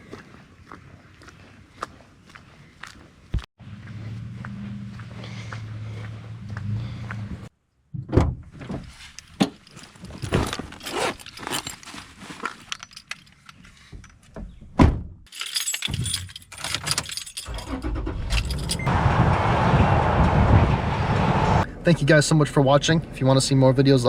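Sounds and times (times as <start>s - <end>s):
car engine rumble: 3.6s - 7.5s, 15.4s - 23.3s
keys jangling: 9.2s - 14.2s, 15.3s - 18.9s.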